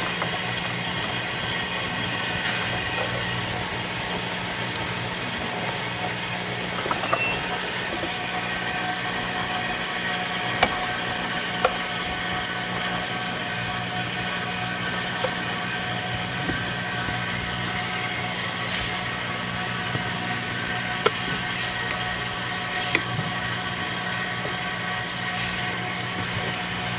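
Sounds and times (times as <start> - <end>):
hiss: 18.6 - 19.2, 25.3 - 26.9.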